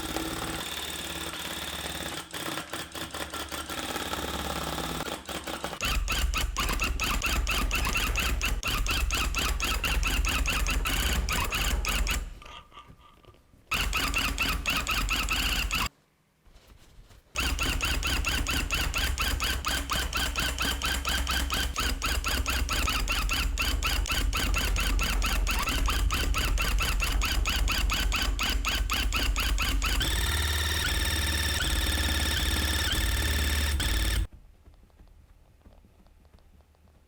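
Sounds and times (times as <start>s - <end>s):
tufting gun chattering and whining: 17.4s - 34.3s.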